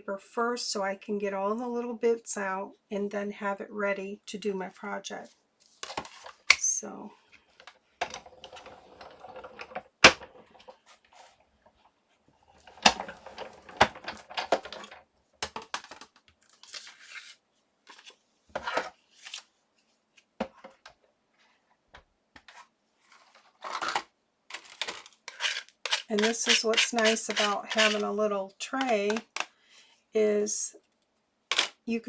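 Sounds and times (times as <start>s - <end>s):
paper rustling: 22.5s - 28.1s.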